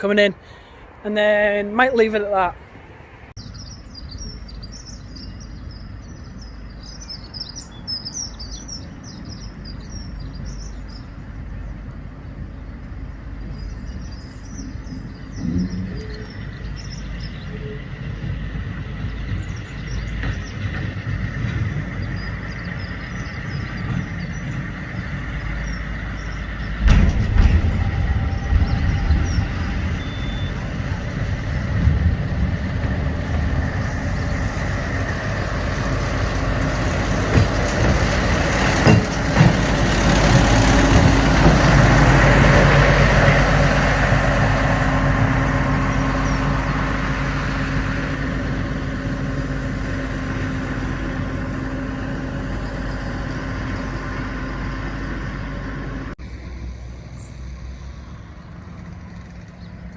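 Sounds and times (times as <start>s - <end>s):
diesel locomotive engine: 0.0s - 59.9s
sharp knocks: 26.7s - 30.0s, 37.2s - 41.9s.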